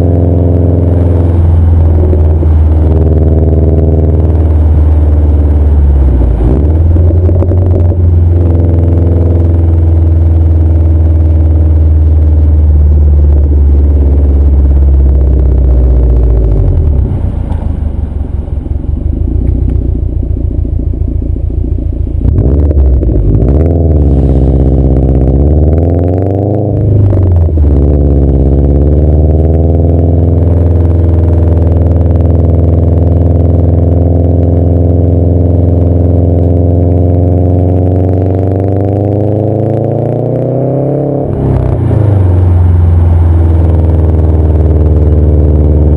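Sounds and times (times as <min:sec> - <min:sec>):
loud car engine revving: 0:00.0 - 0:45.9.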